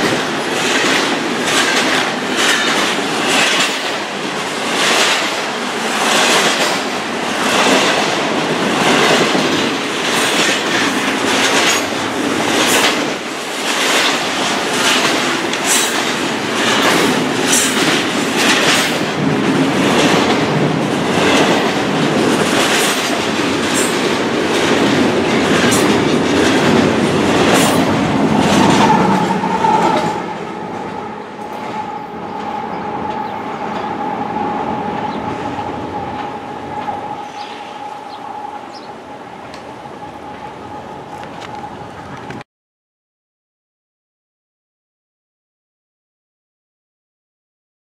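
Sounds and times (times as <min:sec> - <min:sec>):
train wheels clicking over joints: 0:00.0 - 0:34.0
steady high tone: 0:27.8 - 0:41.8.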